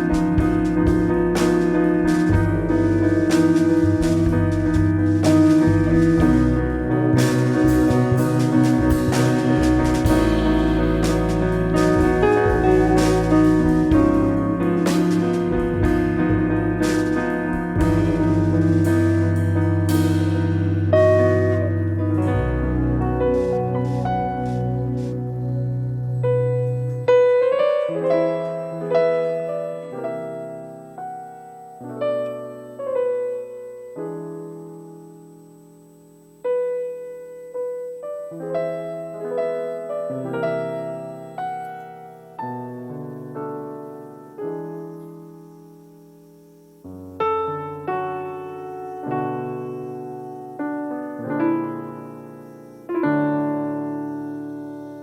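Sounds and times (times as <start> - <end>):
piano chords: 0.0 - 55.0
low bass note: 3.8 - 27.2.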